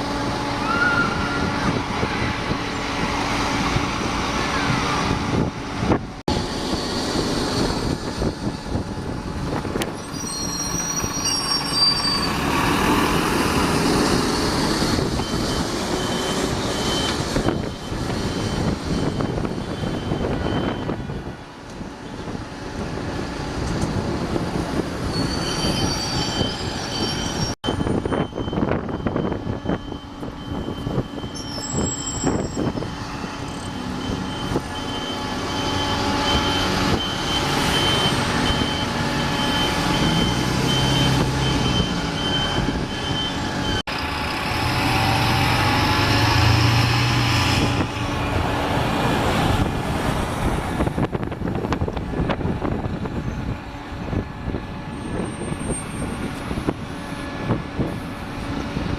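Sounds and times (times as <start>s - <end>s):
high-pitched squeal: 9.9s - 21.0s, 25.0s - 50.2s.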